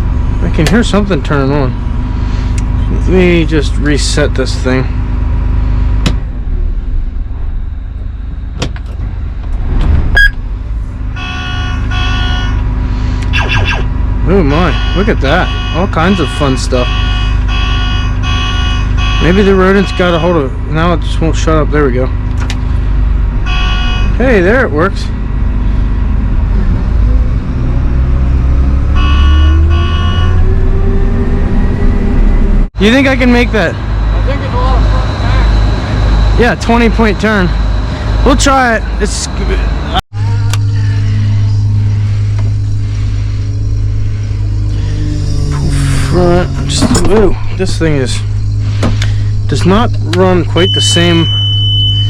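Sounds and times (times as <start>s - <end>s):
harvester engine rumbling: 0.0s - 52.0s
pulsing warning alarm: 10.2s - 21.7s, 22.8s - 26.2s, 28.5s - 52.0s
short loud beep: 50.6s - 52.0s.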